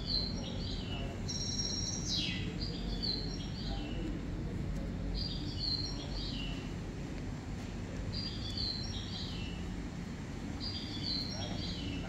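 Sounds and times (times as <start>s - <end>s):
bird singing: 0.0s - 4.0s, 5.2s - 6.7s, 8.1s - 9.7s, 10.6s - 12.0s
low background noise: 0.0s - 12.0s.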